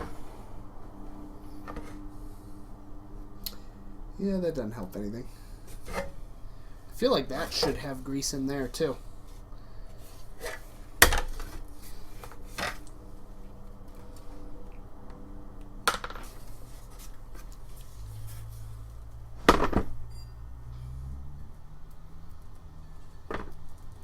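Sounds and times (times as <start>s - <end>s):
faint scraping and handling: 0.0s - 2.6s, 5.3s - 6.4s, 7.0s - 13.0s, 16.2s - 19.0s.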